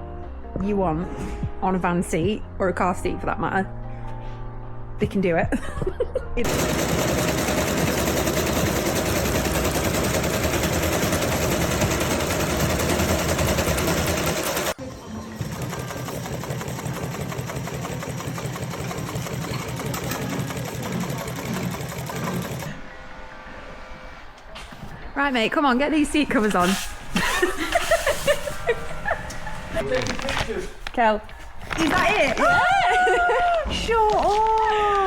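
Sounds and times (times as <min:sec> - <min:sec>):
sewing machine running: 0:06.4 - 0:22.7.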